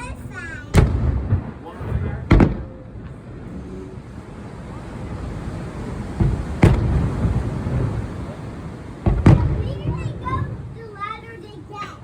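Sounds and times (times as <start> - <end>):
sharp firework bang: 0.6 - 3.5, 6.2 - 8.0, 9.0 - 10.6
rumbling firework shell bursts: 0.7 - 4.4, 6.0 - 8.3, 8.9 - 10.8.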